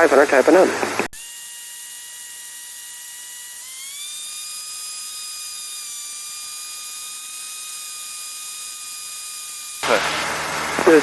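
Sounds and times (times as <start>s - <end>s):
aircraft engine idling whine: 9.8s - 11.0s.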